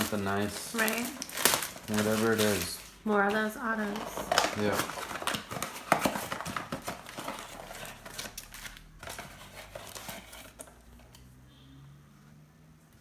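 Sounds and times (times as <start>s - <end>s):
packaging crackles: 0.0s - 3.1s, 3.8s - 10.8s
wrapper tearing and crinkling: 0.0s - 3.1s, 3.8s - 10.8s.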